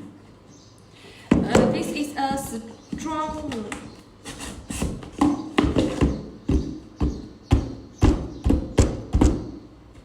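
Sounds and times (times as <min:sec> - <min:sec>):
hands knocking on cardboard box: 0:04.9 - 0:09.6.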